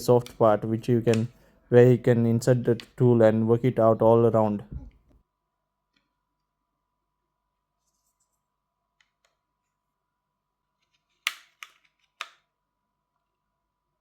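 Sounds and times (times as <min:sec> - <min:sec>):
sharp plastic clicks: 0:01.0 - 0:01.4, 0:10.8 - 0:12.5.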